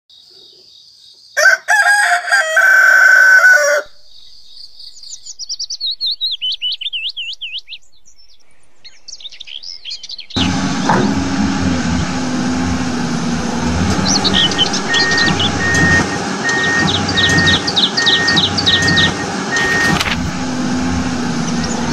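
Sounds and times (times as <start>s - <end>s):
rooster crowing: 1.4s - 4.1s
small bird chirping: 4.0s - 10.4s
steady noise with low hum: 19.6s - 21.9s.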